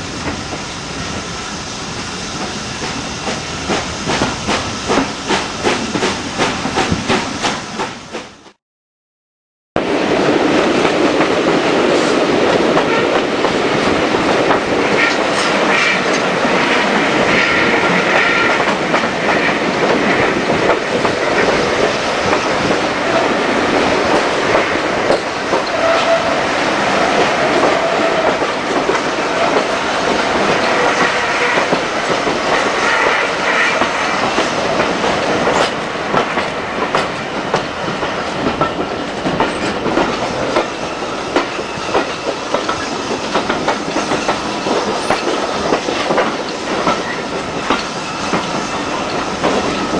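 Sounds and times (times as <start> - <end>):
train carriages rumbling: 0.0 - 8.6, 9.8 - 49.9
wheels squealing on rail: 24.6 - 34.7, 39.5 - 49.9.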